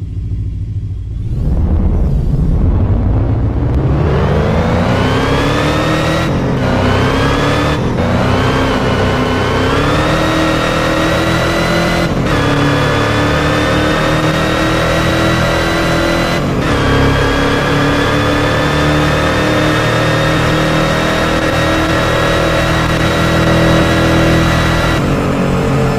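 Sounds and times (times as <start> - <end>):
car engine accelerating hard: 0.0 - 25.9.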